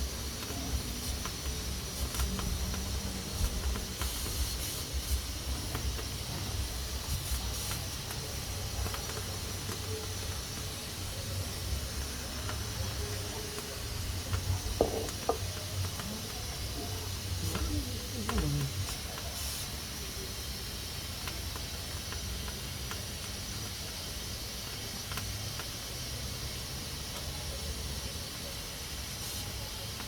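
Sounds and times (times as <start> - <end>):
pressure cooker hissing: 0.0 - 30.0
short knocks: 14.7 - 15.5.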